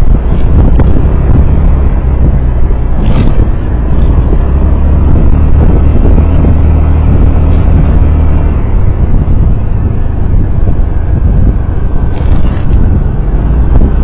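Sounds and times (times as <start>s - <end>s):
vehicle rumbling on road: 0.0s - 14.0s
wind noise on microphone: 0.0s - 14.0s.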